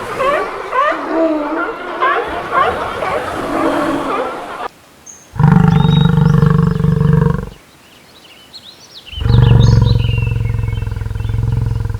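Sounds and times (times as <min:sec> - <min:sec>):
birds chirping: 0:00.0 - 0:11.9
large animal roaring: 0:05.4 - 0:07.6, 0:09.2 - 0:11.9.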